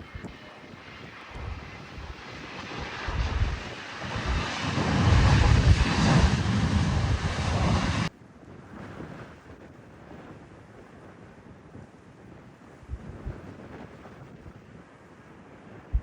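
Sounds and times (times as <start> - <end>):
airliner passing: 0.0 - 8.1
wind buffeting microphone: 0.0 - 9.2, 10.2 - 15.0, 15.7 - 16.0.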